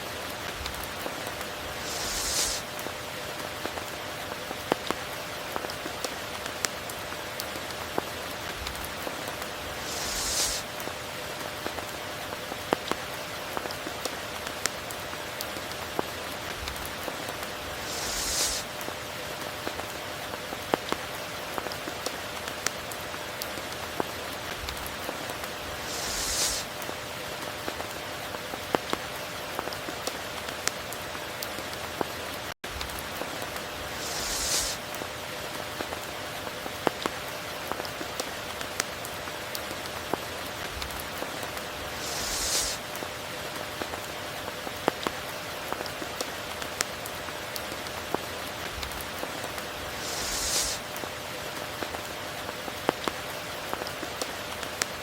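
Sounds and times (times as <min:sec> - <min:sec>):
steady rain hiss: 0:00.0 - 0:55.0
high hissing swell: 0:01.7 - 0:02.7, 0:09.7 - 0:10.7, 0:17.6 - 0:18.7, 0:25.7 - 0:26.7, 0:33.8 - 0:34.8, 0:41.9 - 0:42.8, 0:49.9 - 0:50.8
raindrop ticks: 0:18.8 - 0:25.6.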